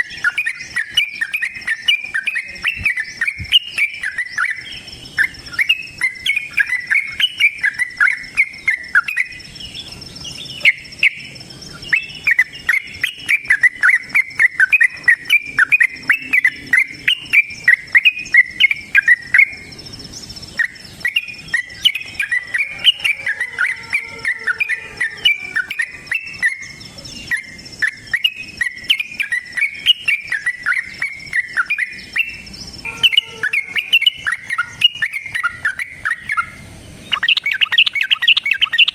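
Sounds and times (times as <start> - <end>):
bird singing rapid chirpy notes: 0.0 - 38.9
faint steady high tone: 37.1 - 38.9.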